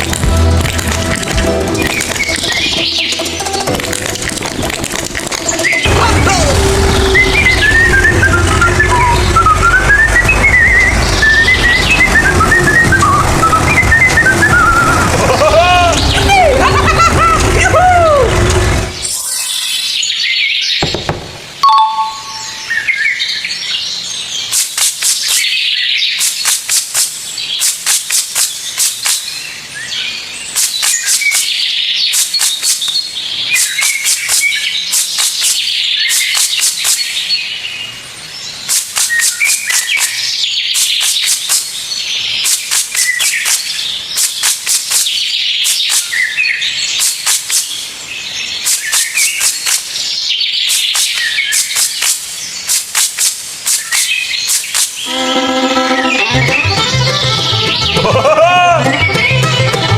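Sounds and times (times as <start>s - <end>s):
birds chirping and trilling: 1.8s - 17.8s, 18.4s - 24.6s, 25.2s - 26.5s, 28.5s - 52.9s, 53.5s - 59.5s
rapid high bird notes: 21.4s - 22.9s, 50.6s - 59.9s.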